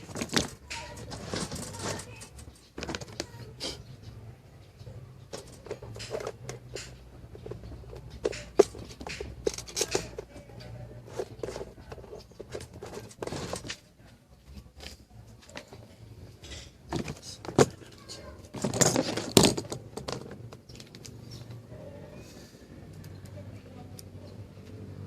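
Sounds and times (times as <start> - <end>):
small hard objects clicking and tapping: 5.2 - 13.8.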